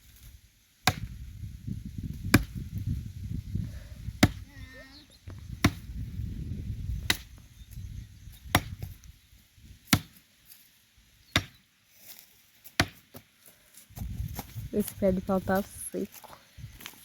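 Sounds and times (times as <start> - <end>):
axe chopping into tree trunk: 0.8 - 1.2, 2.2 - 2.7, 4.1 - 4.4, 5.6 - 5.9, 7.0 - 7.4, 8.5 - 9.0, 9.8 - 10.2, 11.3 - 11.6, 12.7 - 13.2.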